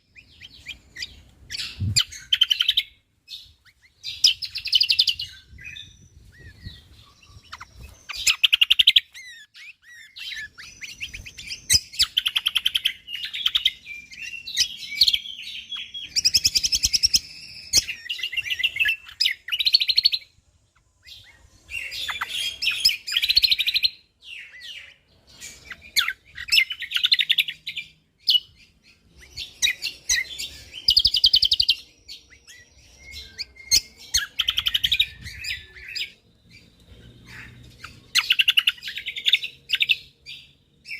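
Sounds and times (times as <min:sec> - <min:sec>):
songbird chirping and trilling: 0:00.0 - 0:40.9.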